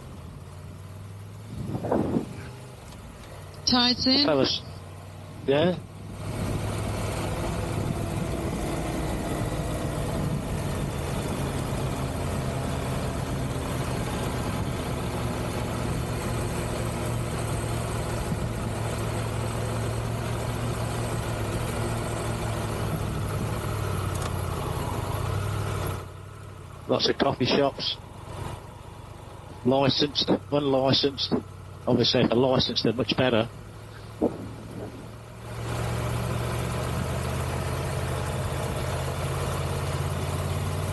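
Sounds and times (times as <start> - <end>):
motorcycle engine running: 0.0 - 40.9
wind and road noise hiss: 0.5 - 5.4, 31.4 - 40.7.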